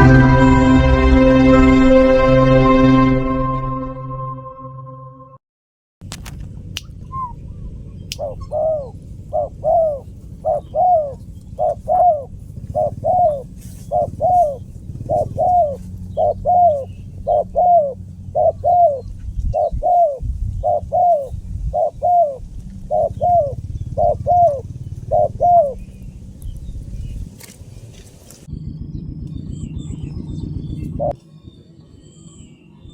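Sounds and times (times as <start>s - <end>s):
dove cooing: 8.2s - 26.2s.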